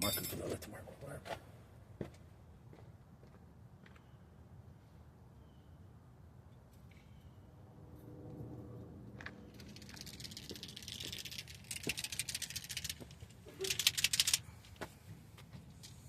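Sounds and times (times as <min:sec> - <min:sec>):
paint marker ball rattling: 0:09.5 - 0:14.4.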